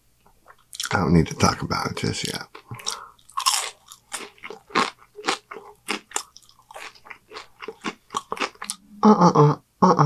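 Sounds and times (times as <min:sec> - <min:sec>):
chewing food with crisp crunches: 0:00.4 - 0:01.4, 0:02.0 - 0:08.8.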